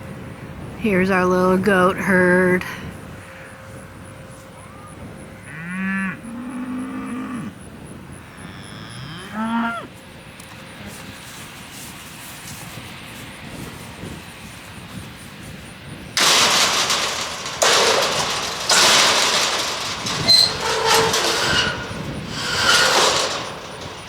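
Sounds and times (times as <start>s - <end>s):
steel panels rattling and clanking: 16.2s - 24.0s.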